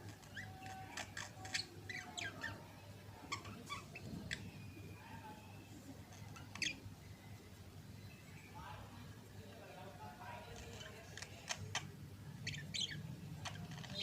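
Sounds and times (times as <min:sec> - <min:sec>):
budgerigars chirping: 0:12.4 - 0:14.0.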